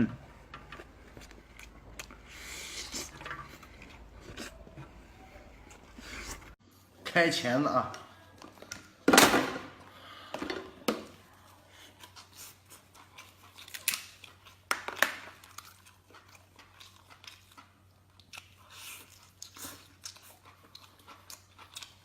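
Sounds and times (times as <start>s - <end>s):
chewing: 0.2s - 6.6s, 11.2s - 22.0s
lobster shell cracking: 13.6s - 15.6s.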